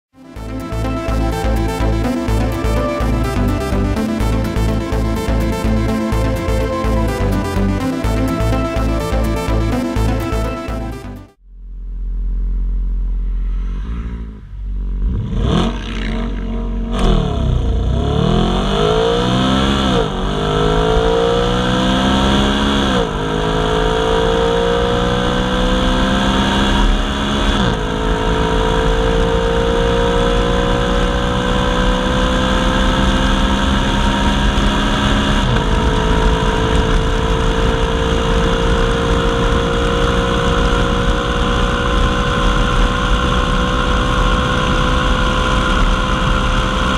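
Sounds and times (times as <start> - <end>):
car accelerating through gears: 13.6 - 46.9.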